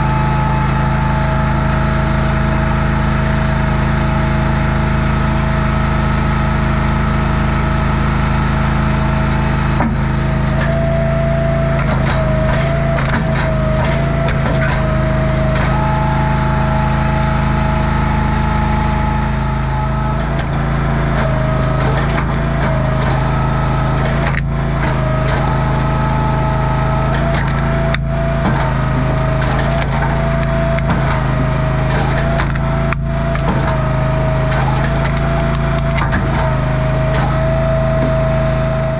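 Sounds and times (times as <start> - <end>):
wood splitter engine whine: 0.0 - 38.9
wood cracking and splintering: 11.8 - 16.0, 19.8 - 26.2, 27.0 - 38.8.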